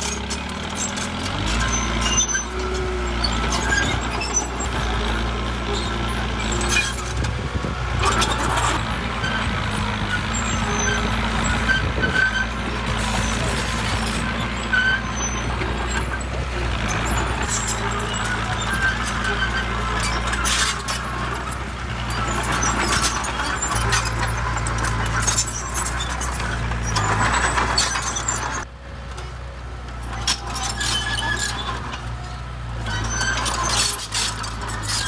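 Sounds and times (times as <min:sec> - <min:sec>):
heavy diesel machinery running: 0:00.0 - 0:35.0
brief squeaks: 0:22.2 - 0:28.6, 0:30.1 - 0:32.0, 0:32.8 - 0:35.0.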